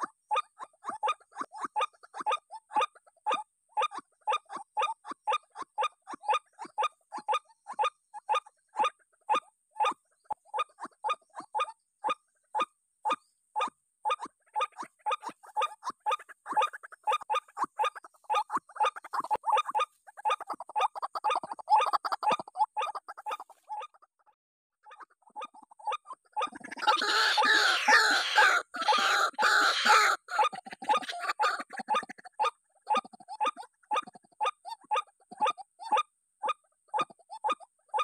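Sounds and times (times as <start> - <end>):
waterhen harsh calls: 26.4 - 32.3.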